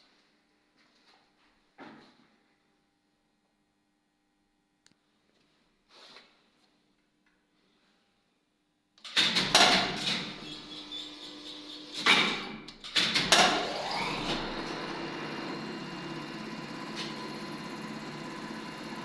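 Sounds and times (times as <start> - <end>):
loud machinery clacks: 9.1 - 10.4
electric lift motor humming: 9.4 - 19.0.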